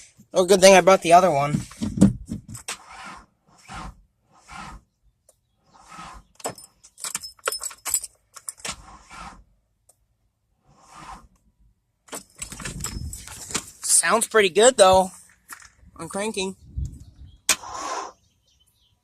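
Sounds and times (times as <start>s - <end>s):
metal clinking and jingling: 6.5s - 8.6s, 12.2s - 13.8s.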